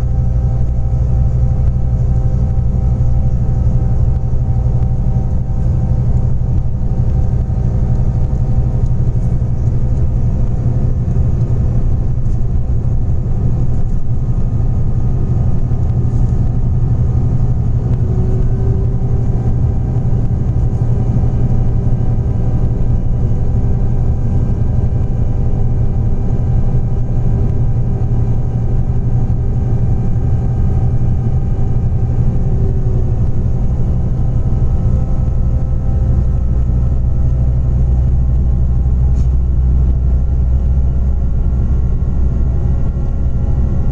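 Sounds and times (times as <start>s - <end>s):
bus engine droning: 0.0s - 43.9s
road noise: 0.0s - 43.9s.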